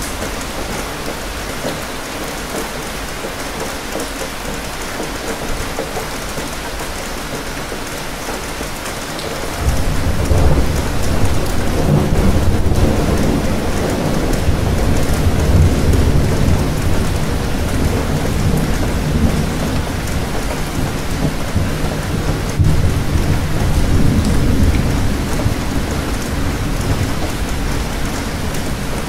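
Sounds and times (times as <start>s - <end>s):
steady rain: 0.0s - 29.0s
deep thunder rumble: 9.6s - 29.0s.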